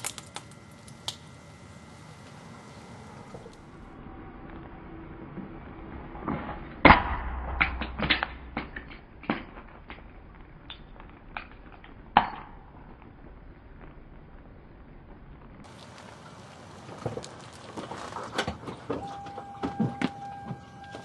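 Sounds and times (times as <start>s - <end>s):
plastic cracking: 0.0s - 1.2s.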